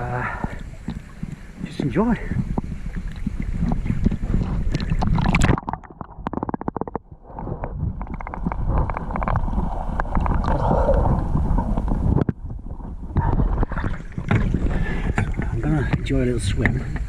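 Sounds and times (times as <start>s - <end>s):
water sloshing: 0.0s - 12.3s, 13.0s - 17.0s
wind buffeting microphone: 0.0s - 17.0s.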